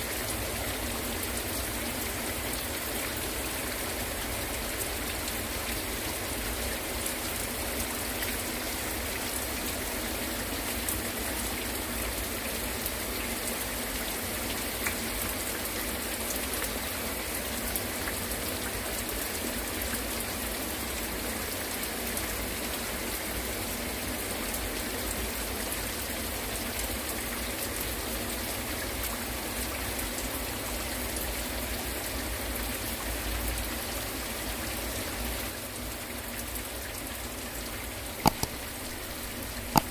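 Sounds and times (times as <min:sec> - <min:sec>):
raindrops ticking on surfaces: 0:00.1 - 0:34.1, 0:34.7 - 0:39.9
heavy rain falling: 0:38.0 - 0:39.9.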